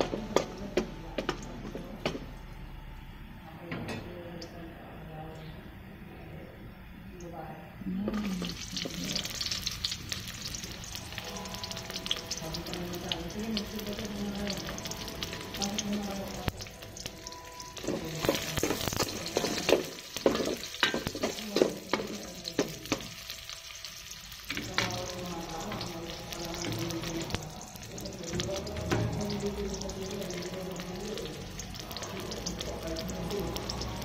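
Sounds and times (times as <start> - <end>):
onions sizzling in hot oil: 0.0 - 2.7, 7.9 - 34.0.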